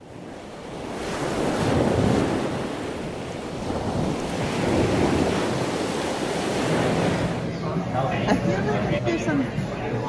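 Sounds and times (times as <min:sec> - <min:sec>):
sea waves washing: 0:00.0 - 0:07.8
wind buffeting microphone: 0:00.0 - 0:10.0.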